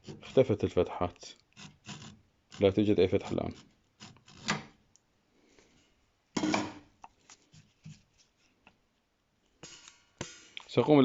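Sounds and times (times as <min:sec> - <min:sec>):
rubbing and handling noises: 0:00.0 - 0:04.8, 0:07.1 - 0:09.1.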